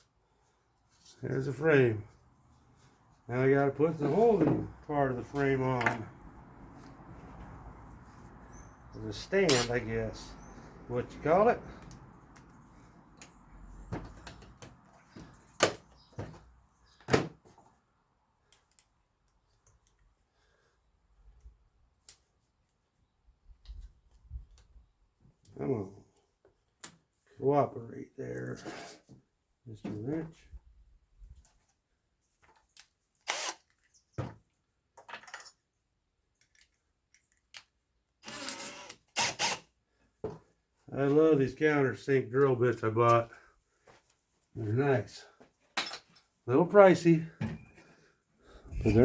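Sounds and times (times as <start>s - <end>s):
tools clicking and scraping: 9.5s - 9.8s, 36.4s - 39.7s.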